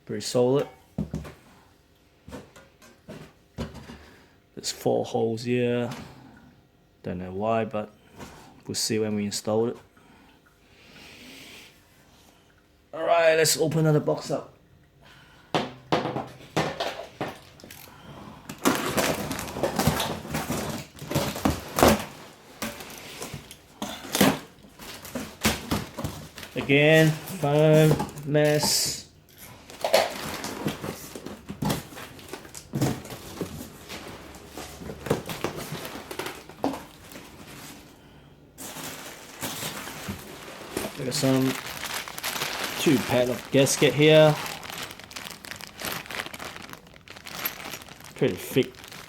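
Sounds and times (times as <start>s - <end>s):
foam packing crinkling and rustling: 18.5s - 29.0s, 29.6s - 38.0s, 38.6s - 49.0s
rustling and tearing: 38.6s - 49.0s.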